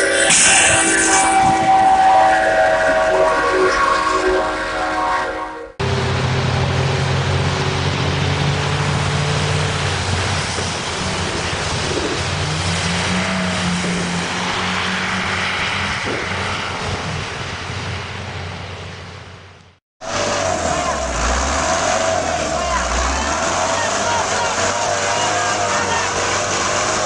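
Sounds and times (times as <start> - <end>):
loud rushing noise: 0.0 - 4.2, 5.7 - 19.0, 20.0 - 27.0
heavy vehicle engine running: 5.7 - 27.0.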